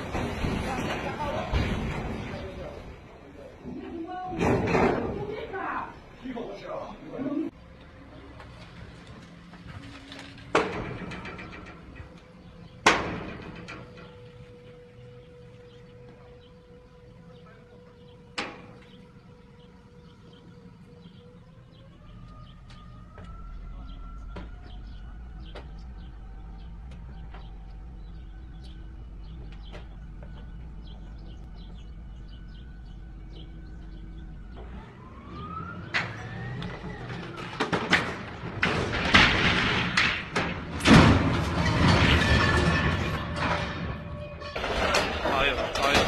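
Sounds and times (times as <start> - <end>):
loud crashing and scraping: 0.0 - 2.9, 36.0 - 46.0
truck engine whine: 0.0 - 46.0
low rumble: 4.4 - 46.0.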